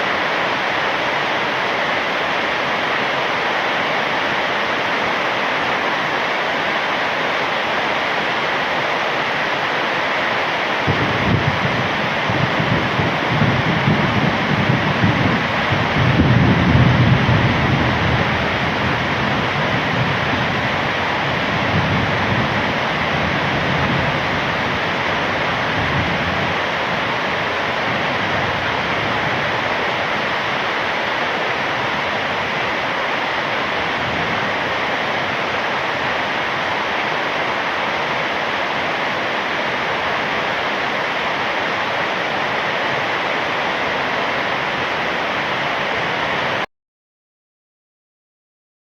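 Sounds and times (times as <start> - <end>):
heavy rain pouring: 0.0 - 46.7
thunder rumbling: 10.8 - 37.4.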